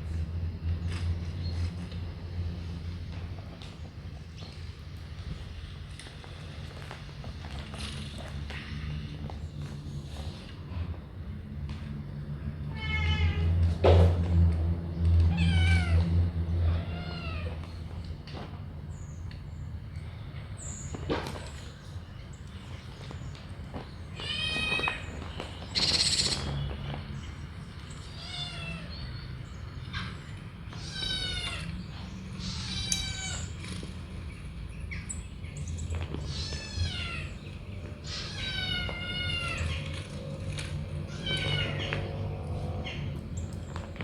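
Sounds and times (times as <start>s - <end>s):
kittens meowing: 12.7s - 13.8s, 15.2s - 17.7s, 24.1s - 26.5s, 28.0s - 29.1s, 29.9s - 33.9s, 35.9s - 43.2s.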